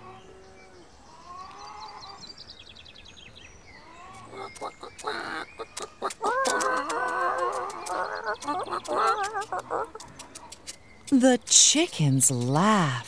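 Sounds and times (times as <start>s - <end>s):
chicken clucking: 4.1s - 10.8s
quick chirps: 4.3s - 12.6s.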